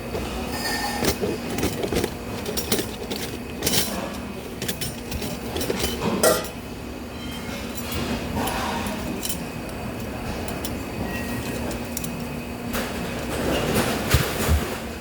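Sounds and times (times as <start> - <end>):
steady machine hum: 0.0 - 15.0
metal clanking and clinking: 0.2 - 9.4, 10.0 - 12.4.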